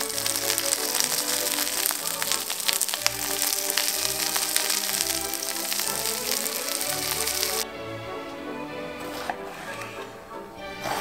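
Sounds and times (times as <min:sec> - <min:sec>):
aubergine sizzling in hot oil: 0:00.0 - 0:07.6
background music: 0:00.0 - 0:11.0.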